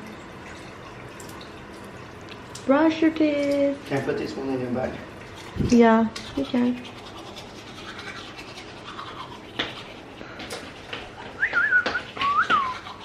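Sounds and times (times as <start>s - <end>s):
toothbrush scrubbing teeth: 3.4s - 13.0s
high wobbling whistle: 11.4s - 12.8s.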